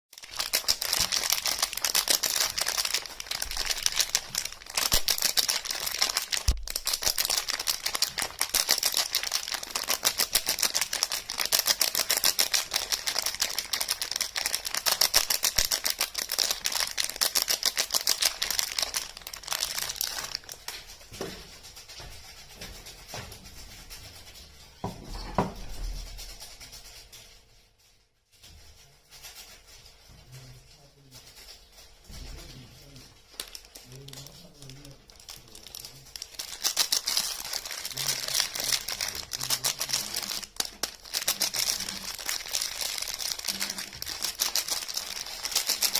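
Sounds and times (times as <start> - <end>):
packaging crinkling: 0.1 - 21.1, 32.2 - 45.9.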